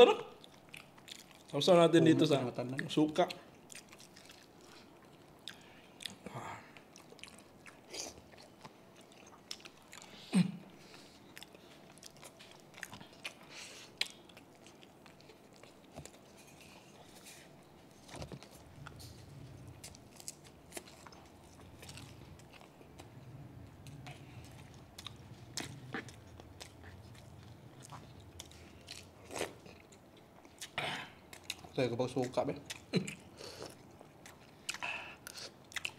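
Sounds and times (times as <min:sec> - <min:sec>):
biting and chewing: 0:11.3 - 0:35.9.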